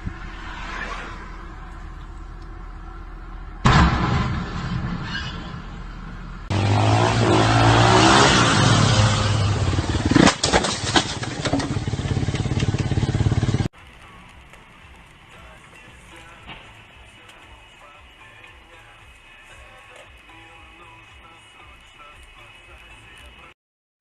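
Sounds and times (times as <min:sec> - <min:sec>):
vehicle engine running: 0:00.0 - 0:04.0, 0:05.7 - 0:17.2
road noise: 0:00.0 - 0:23.6
loud crash bang: 0:03.6 - 0:06.4.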